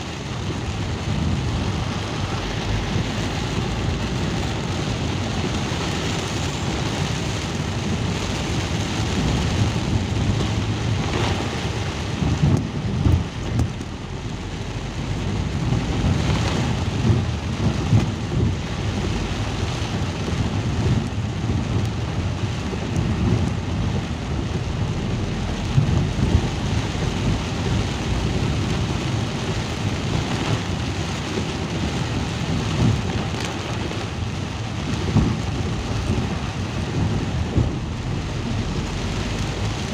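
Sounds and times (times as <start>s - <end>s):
steady rain: 0.0s - 39.9s
loud low rumble: 9.0s - 30.3s, 34.3s - 39.9s.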